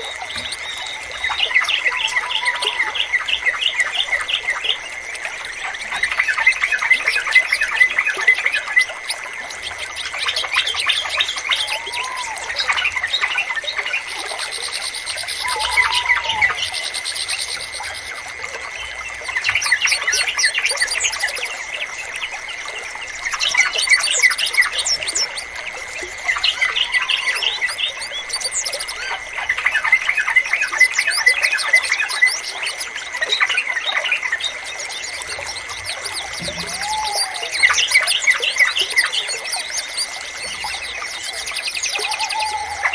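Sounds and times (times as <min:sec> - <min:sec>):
bulbuls chirping: 0:00.0 - 0:42.9
slower lower arched bird calls: 0:00.0 - 0:42.9
thin steady high tone: 0:00.0 - 0:42.9.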